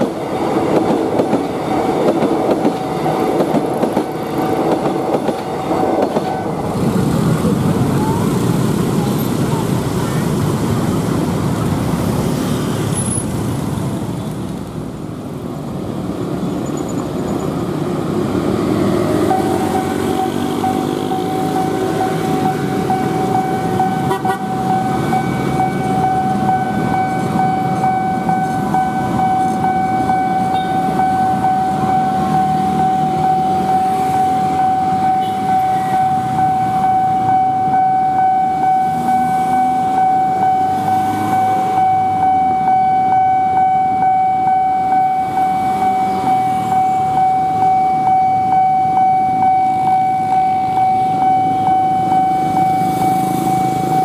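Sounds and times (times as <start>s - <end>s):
motorcycle and car traffic: 0.0s - 54.0s
level crossing alarm tone: 18.6s - 54.0s.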